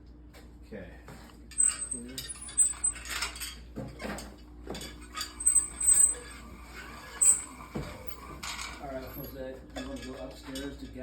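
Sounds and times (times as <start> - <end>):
metal hardware clinking: 1.6 - 3.3, 5.1 - 6.4, 7.2 - 8.6.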